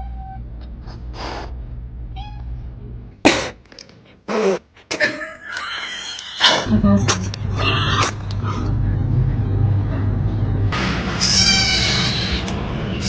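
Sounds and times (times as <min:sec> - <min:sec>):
cat hissing: 0:04.3 - 0:04.6.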